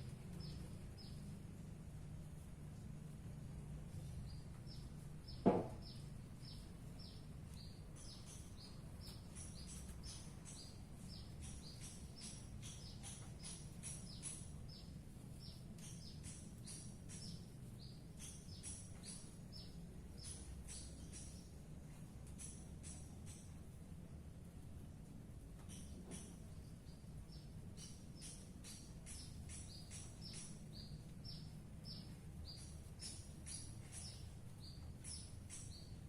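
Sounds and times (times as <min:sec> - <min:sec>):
low steady hum: 0:00.0 - 0:36.0
loud knock: 0:05.4 - 0:05.9.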